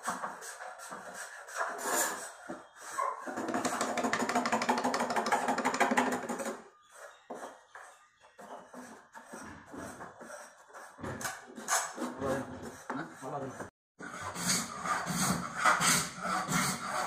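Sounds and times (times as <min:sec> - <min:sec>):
knocks and handling noises: 0:03.3 - 0:06.6.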